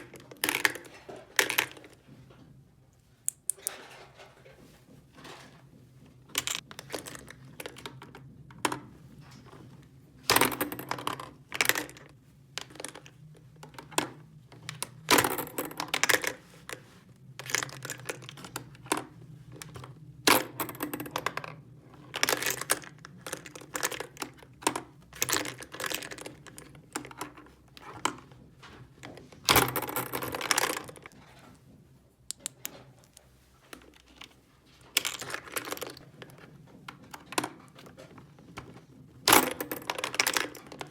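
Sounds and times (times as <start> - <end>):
plastic toy pieces clattering: 6.4 - 8.1, 17.4 - 19.0, 20.3 - 28.1, 29.1 - 31.2, 34.9 - 36.4, 39.2 - 40.9.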